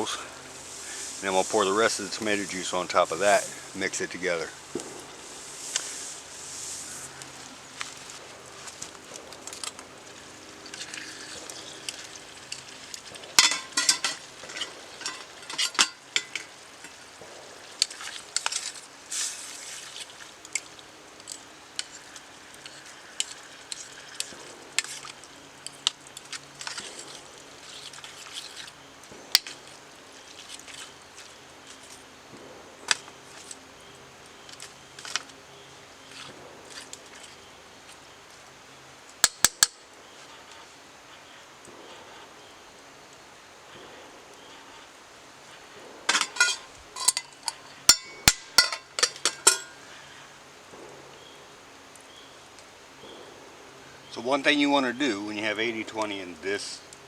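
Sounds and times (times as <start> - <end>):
faint sizzle: 0.0 - 57.0
utensil scraping food in a pot: 0.2 - 3.7, 10.6 - 17.0, 46.1 - 49.8
clinks against cookware: 13.4 - 16.5, 46.1 - 49.8.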